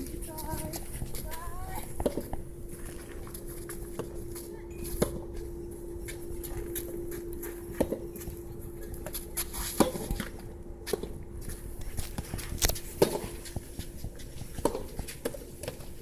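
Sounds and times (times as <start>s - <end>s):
steady hum: 0.0s - 16.0s
tennis ball racket hits: 9.6s - 10.3s, 13.0s - 13.5s, 14.2s - 15.8s.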